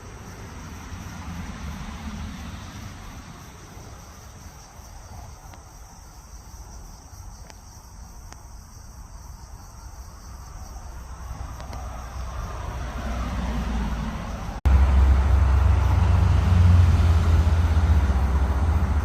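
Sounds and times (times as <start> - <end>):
insects chirring: 0.0 - 19.0
faint ticks: 7.0 - 8.5.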